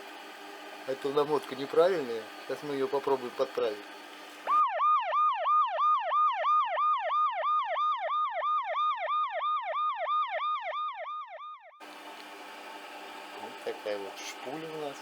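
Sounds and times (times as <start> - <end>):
electronic siren-like whoop: 4.5 - 11.8.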